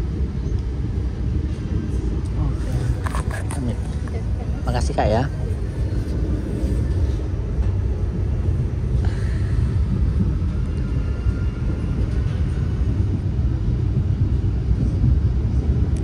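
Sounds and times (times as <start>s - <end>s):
train wheels running on track: 0.0s - 16.0s.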